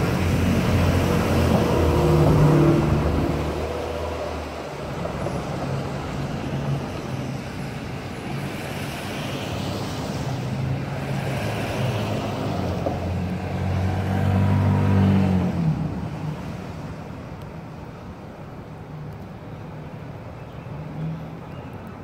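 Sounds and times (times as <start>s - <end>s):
electric train passing: 0.0s - 14.6s.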